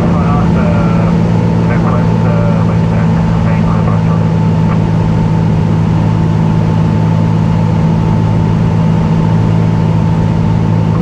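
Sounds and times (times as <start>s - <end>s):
propeller plane engine droning: 0.0s - 11.0s
thin steady whine: 0.0s - 11.0s.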